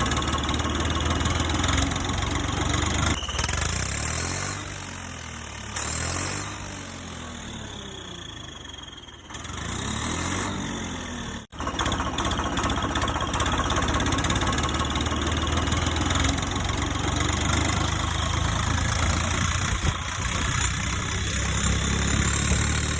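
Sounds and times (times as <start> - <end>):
tractor engine running: 0.0 - 22.9.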